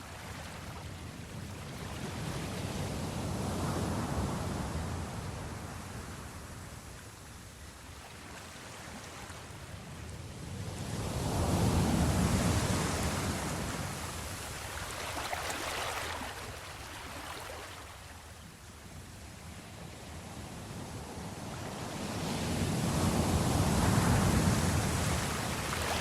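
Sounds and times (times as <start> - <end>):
ocean waves breaking on shore: 7.8 - 18.4, 20.7 - 26.0.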